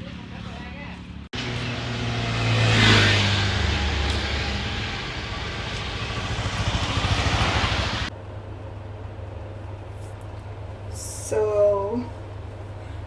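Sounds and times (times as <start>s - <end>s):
traffic noise: 0.0s - 12.8s
vehicle passing by: 1.3s - 8.1s.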